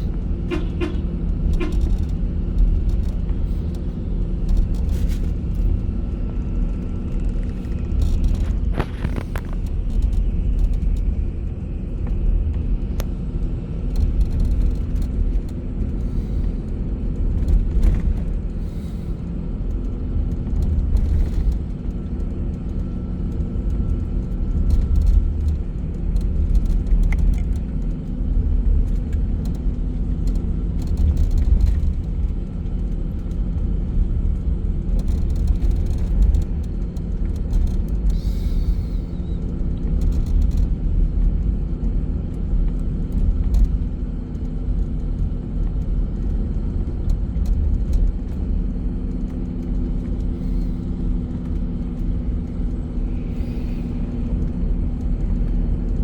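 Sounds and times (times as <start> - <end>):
bus engine and road rumble: 0.0 - 56.0
small clicks and rattles: 0.5 - 5.8, 13.8 - 16.5, 19.7 - 55.6.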